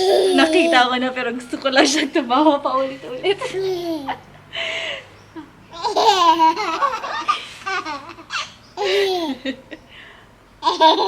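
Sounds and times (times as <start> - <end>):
baby laughing: 0.0 - 0.9, 3.4 - 4.3, 5.7 - 9.8, 10.6 - 11.0.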